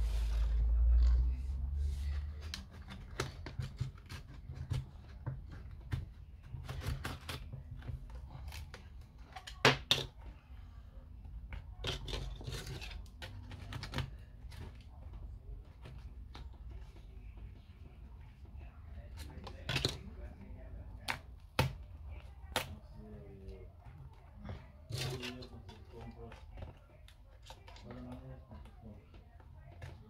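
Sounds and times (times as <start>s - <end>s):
tools and parts clicking and scraping: 11.5s - 14.8s.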